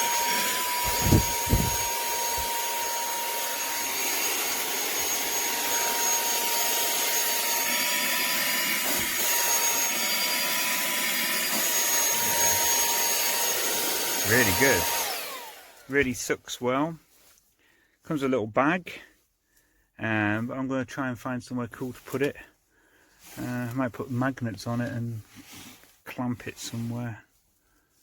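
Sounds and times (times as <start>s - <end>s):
handheld vacuum motor whine: 0.0s - 16.1s.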